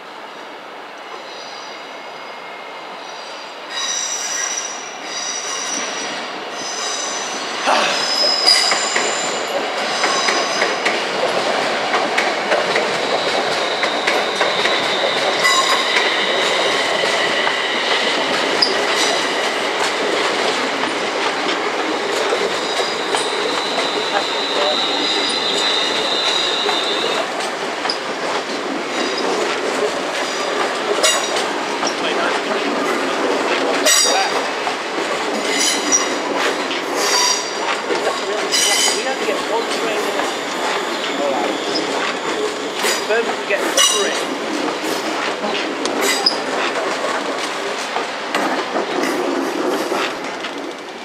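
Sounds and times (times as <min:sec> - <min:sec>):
train wheels squealing: 0:01.1 - 0:10.9, 0:13.1 - 0:19.6, 0:22.6 - 0:27.2, 0:35.4 - 0:36.2, 0:37.0 - 0:37.6, 0:38.5 - 0:43.2
wheels clicking over rail joints: 0:25.1 - 0:51.0.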